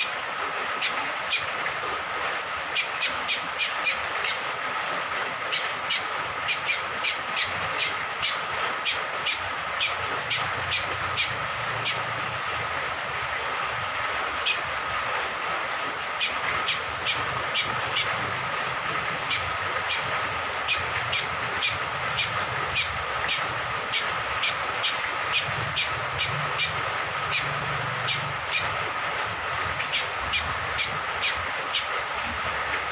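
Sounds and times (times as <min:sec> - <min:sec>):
rain hiss: 0:00.0 - 0:32.9
bird chirping: 0:09.3 - 0:12.0, 0:20.7 - 0:28.6.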